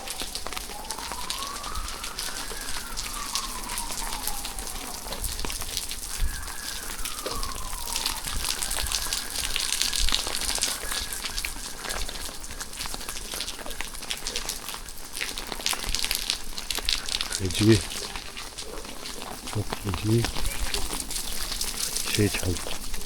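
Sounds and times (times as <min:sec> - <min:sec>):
siren wailing: 0:00.0 - 0:12.4, 0:17.3 - 0:18.2, 0:19.5 - 0:22.9
steady rain pattering: 0:00.0 - 0:23.0.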